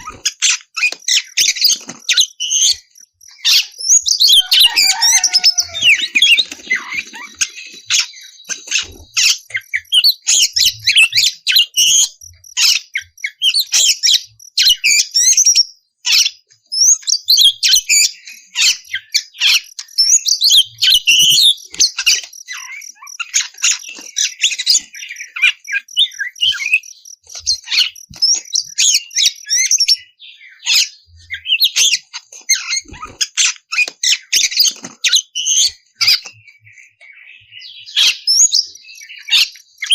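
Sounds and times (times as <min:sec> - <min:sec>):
bird singing chirps and whistles: 0:00.0 - 0:39.9.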